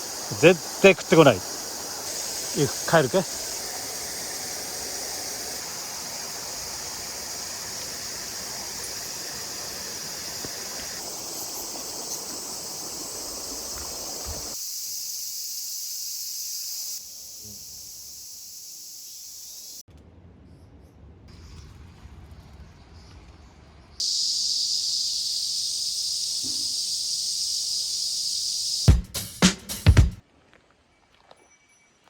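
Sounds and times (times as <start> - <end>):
mountain stream running: 0.0 - 14.6
insects chirring: 0.0 - 19.8, 24.0 - 30.0.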